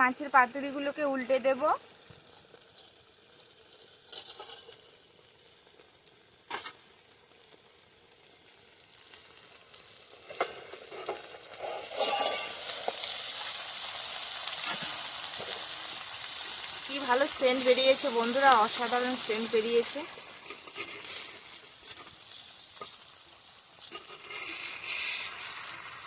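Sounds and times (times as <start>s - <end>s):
fish frying in oil: 0.0s - 26.0s
dishes clinking: 11.6s - 12.6s.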